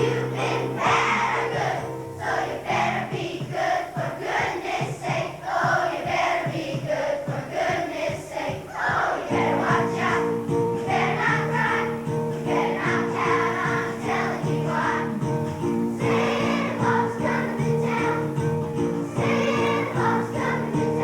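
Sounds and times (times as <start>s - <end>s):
held chords accompaniment: 0.0s - 3.5s, 9.3s - 21.0s
children's choir singing: 0.0s - 21.0s.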